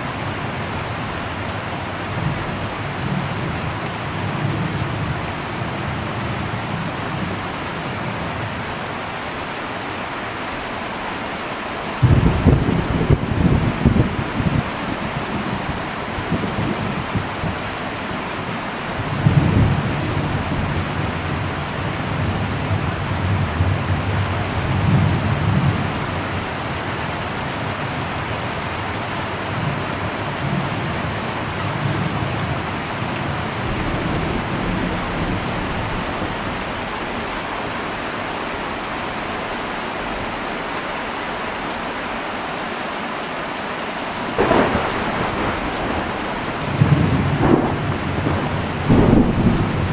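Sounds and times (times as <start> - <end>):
heavy rain on a metal roof: 0.0 - 49.9
sharp thunderclap: 12.0 - 17.6, 33.6 - 37.0, 44.4 - 49.9
thunder rumbling: 12.0 - 28.9, 29.6 - 38.1, 44.3 - 49.9.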